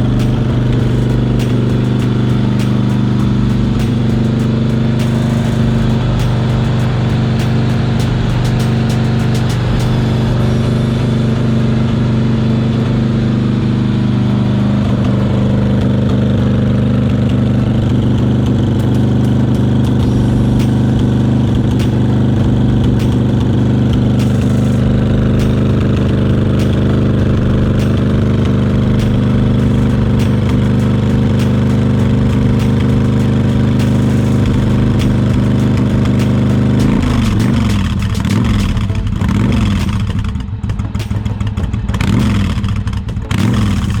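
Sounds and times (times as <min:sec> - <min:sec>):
motorcycle engine idling: 0:00.0 - 0:44.0.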